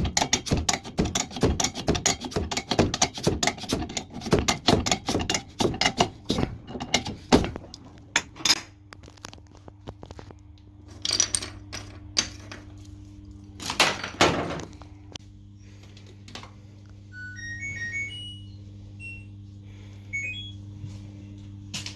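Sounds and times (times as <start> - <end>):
steady low hum: 0.0 - 21.9
metal parts and tools clinking: 10.9 - 12.7.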